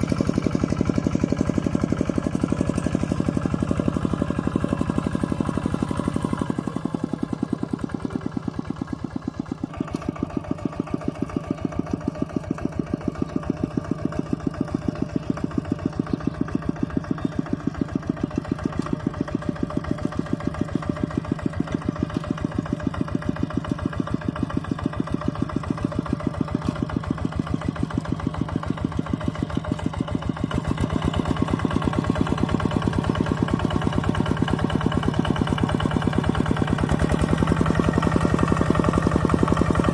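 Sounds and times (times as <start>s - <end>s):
tractor engine chugging: 0.0s - 39.9s.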